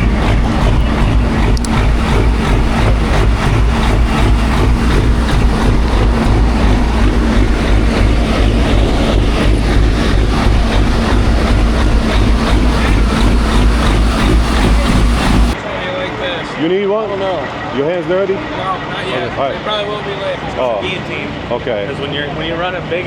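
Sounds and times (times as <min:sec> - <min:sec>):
diesel truck engine rumbling: 0:00.0 - 0:15.6.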